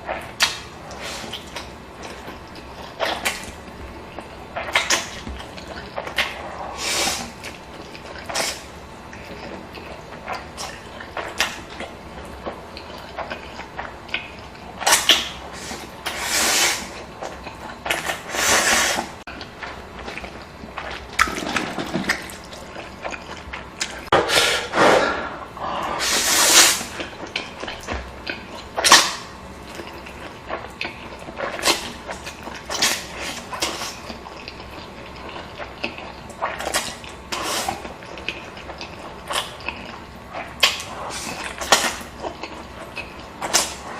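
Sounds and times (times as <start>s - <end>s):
wet chewing: 0.0s - 24.2s, 26.5s - 43.9s
noodle slurping: 17.9s - 19.2s.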